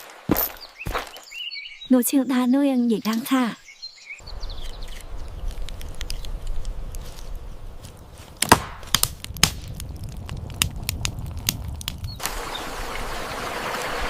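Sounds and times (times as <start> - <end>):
sharp irregular knocks: 8.4 - 10.8.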